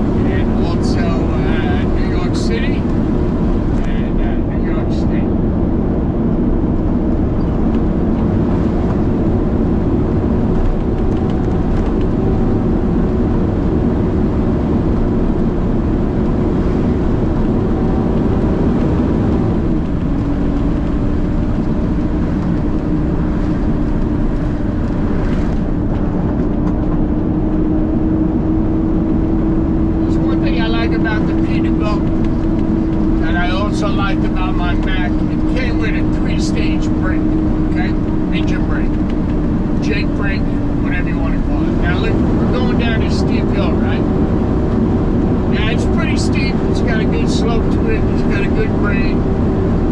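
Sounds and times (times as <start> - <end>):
diesel truck engine drone: 0.0 - 49.9.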